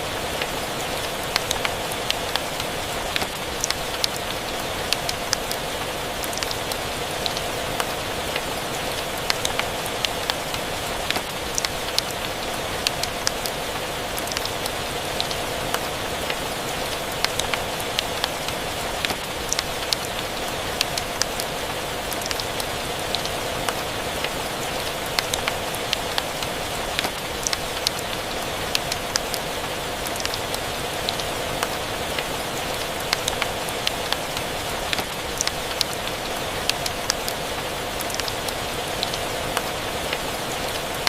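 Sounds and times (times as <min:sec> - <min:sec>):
steady rain: 0:00.0 - 0:41.0.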